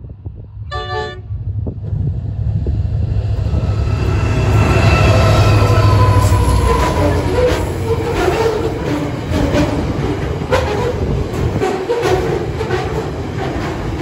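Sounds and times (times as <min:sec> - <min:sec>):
diesel locomotive rumble: 0:00.0 - 0:14.0
steady whining tones: 0:00.3 - 0:08.1
locomotive horn blast: 0:00.6 - 0:01.4.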